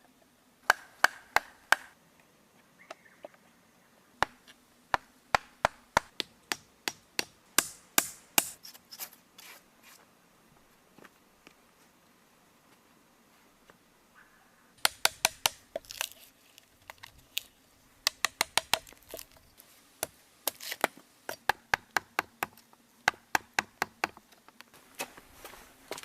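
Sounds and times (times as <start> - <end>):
hand tool striking wood: 0.6 - 1.9, 4.2 - 8.6, 14.8 - 16.0, 18.0 - 19.4, 20.0 - 24.2.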